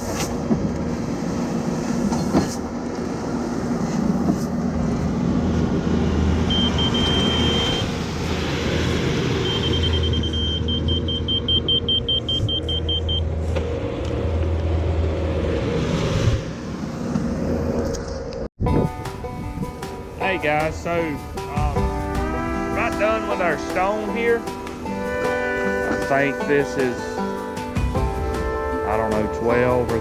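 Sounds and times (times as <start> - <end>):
diesel engine running under load: 2.9 - 16.0
high warning beeper: 6.5 - 7.9, 9.4 - 13.3.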